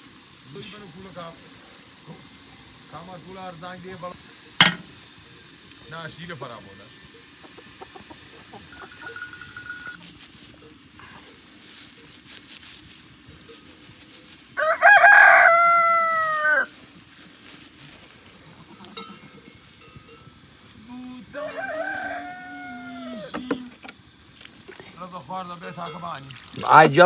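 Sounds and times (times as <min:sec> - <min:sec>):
rooster crowing: 0:07.6 - 0:10.0, 0:14.6 - 0:16.8, 0:21.2 - 0:23.8.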